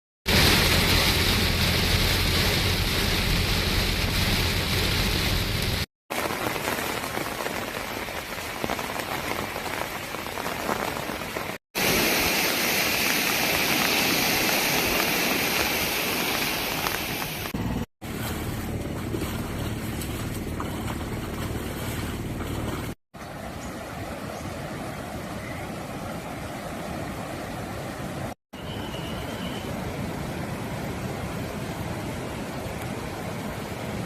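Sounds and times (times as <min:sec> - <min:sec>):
steady rain falling: 0:00.3 - 0:17.9, 0:29.7 - 0:34.0.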